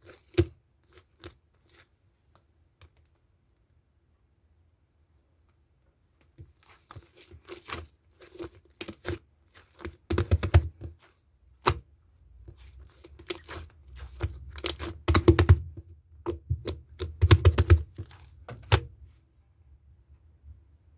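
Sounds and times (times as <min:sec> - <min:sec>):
slime crackling and popping: 0:12.6 - 0:15.6.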